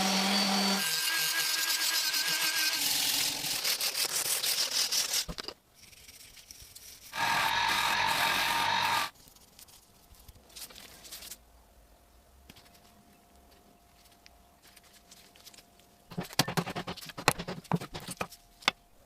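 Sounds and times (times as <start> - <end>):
hard objects knocking and clicking: 16.1 - 18.8.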